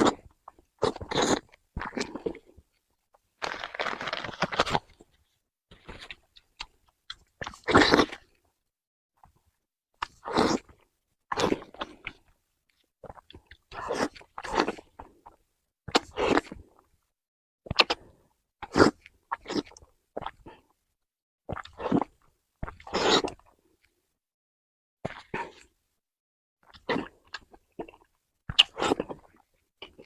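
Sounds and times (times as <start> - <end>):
person chewing food: 0.0 - 2.8, 3.4 - 8.5, 9.2 - 17.0, 21.5 - 24.0, 25.1 - 25.8, 26.6 - 30.0.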